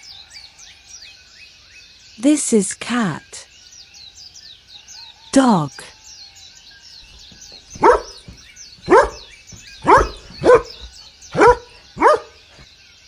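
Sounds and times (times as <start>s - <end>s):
faint bird chirping: 0.0s - 13.0s
dog barking: 7.6s - 12.6s.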